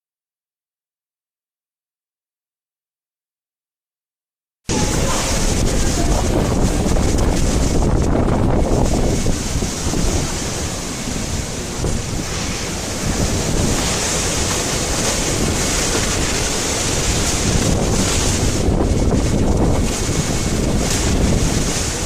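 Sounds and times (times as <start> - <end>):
strong wind against microphone: 4.7 - 22.0.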